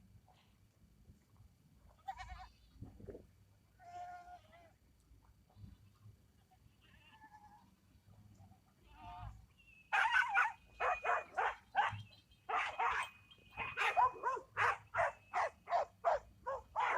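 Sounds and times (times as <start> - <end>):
faint animal call: 3.8 - 4.8, 5.6 - 7.7, 8.8 - 16.9.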